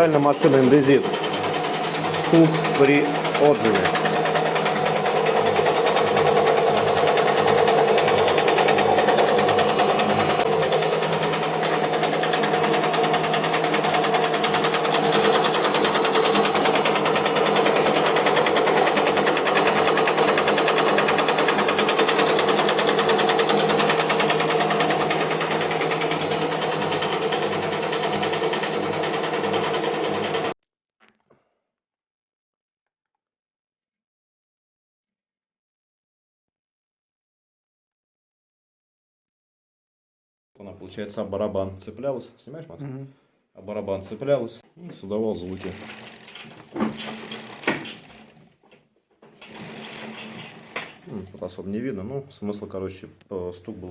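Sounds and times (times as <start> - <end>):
fast knocking rattle: 0.0 - 30.5, 45.5 - 48.4, 49.3 - 51.1
washing machine spinning hum: 0.0 - 30.6, 45.1 - 48.5, 49.4 - 51.3.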